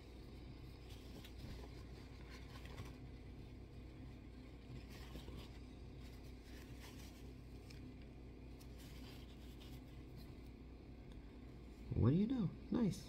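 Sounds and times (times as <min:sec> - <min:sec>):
steady low hum: 0:00.0 - 0:13.0
scratchy rustles: 0:00.2 - 0:10.5.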